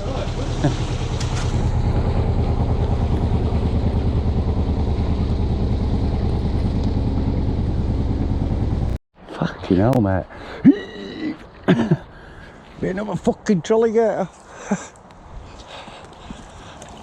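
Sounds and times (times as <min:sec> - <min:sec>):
boat engine throbbing: 0:00.0 - 0:09.0.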